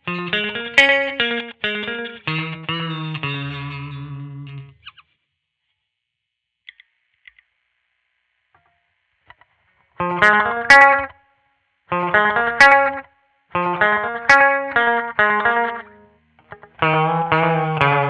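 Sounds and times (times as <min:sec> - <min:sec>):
electric guitar strummed chords: 0:00.0 - 0:04.8, 0:10.0 - 0:11.2, 0:11.9 - 0:18.0
guitar string and pick clicks: 0:08.6 - 0:11.2, 0:11.9 - 0:18.0.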